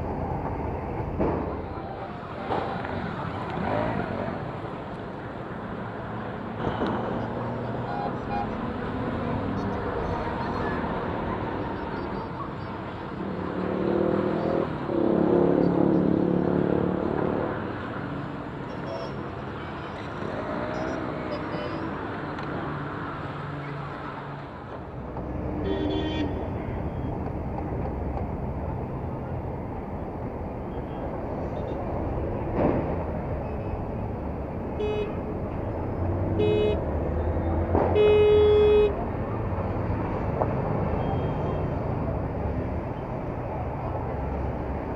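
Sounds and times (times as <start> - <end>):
road and wind noise: 0.0 - 44.9
traffic engine noise: 0.0 - 44.9
vehicle horn honking: 25.6 - 26.4, 34.8 - 35.2, 36.3 - 36.8, 38.0 - 39.0.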